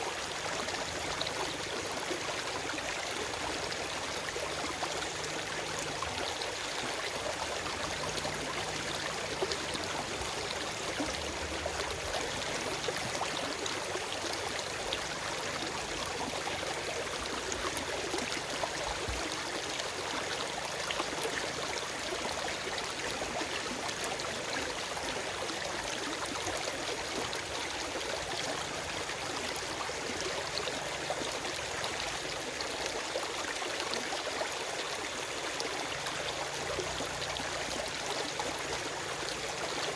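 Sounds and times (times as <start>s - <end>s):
stream rushing and babbling: 0.0s - 39.9s.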